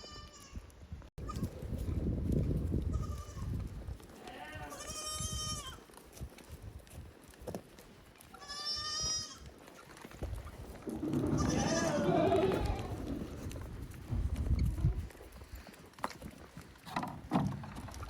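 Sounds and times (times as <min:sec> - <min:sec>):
goat bleating: 0:04.2 - 0:05.8, 0:08.3 - 0:09.5, 0:10.9 - 0:13.4.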